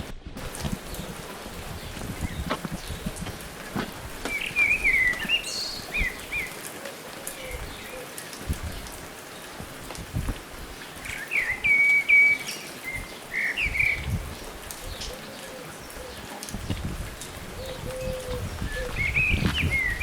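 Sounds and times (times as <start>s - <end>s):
songbird chirping and trilling: 4.3s - 6.6s.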